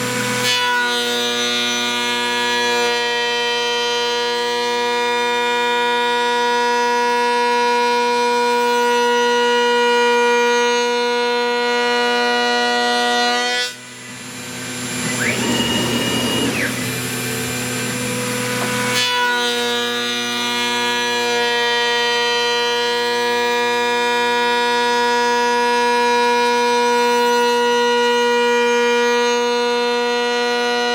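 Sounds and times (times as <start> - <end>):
cnc router whine: 0.0 - 30.9
router cutting into wood: 0.0 - 30.9.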